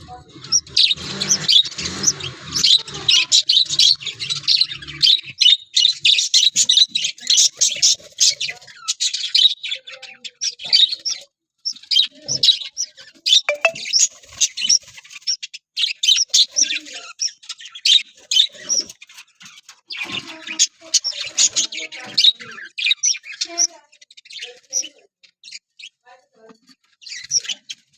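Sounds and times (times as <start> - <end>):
budgerigars chirping: 0.3 - 13.7.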